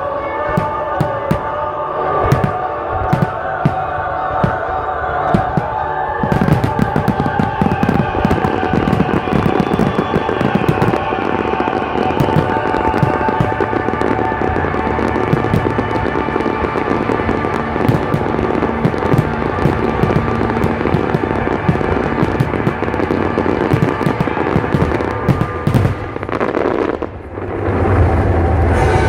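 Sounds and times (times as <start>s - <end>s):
fireworks bangs and crackles: 0.0s - 28.8s
loud music: 0.0s - 29.0s.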